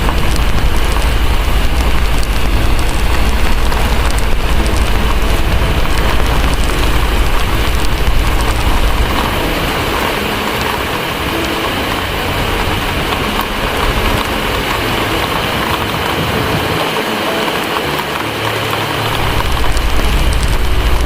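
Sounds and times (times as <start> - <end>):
low rumble: 0.0 - 16.9, 17.5 - 21.0
heavy rain: 0.0 - 21.0.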